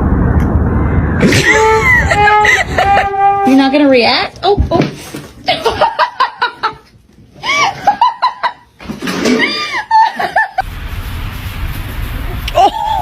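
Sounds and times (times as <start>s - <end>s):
person laughing: 1.2s - 3.3s, 9.3s - 10.6s, 12.4s - 13.0s
steady rushing noise: 10.6s - 13.0s.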